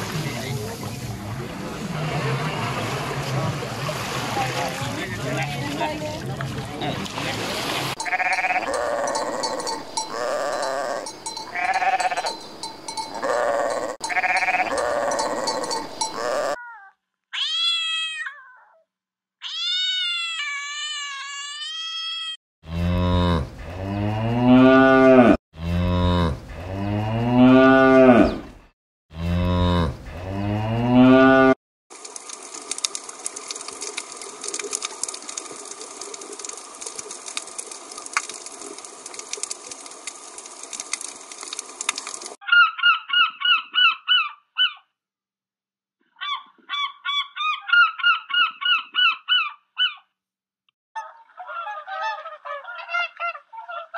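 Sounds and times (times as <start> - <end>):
cattle mooing: 8.0 - 12.4, 13.1 - 16.6, 22.7 - 28.4, 29.2 - 31.6
sheep bleating: 8.0 - 12.4, 13.1 - 16.6.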